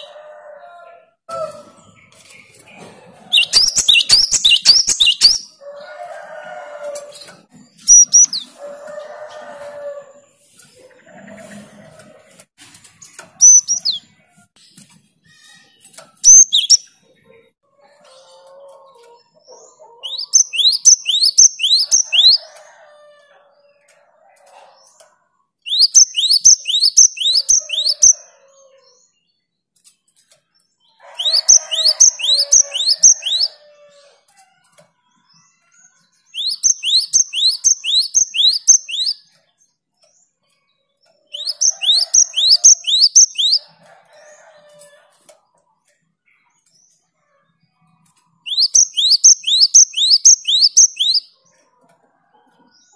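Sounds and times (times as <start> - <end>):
bird singing whistled notes: 3.4 - 5.6, 7.8 - 8.6, 16.2 - 16.9, 20.0 - 22.4, 25.7 - 28.2, 36.3 - 39.2, 41.3 - 43.7, 48.5 - 51.4.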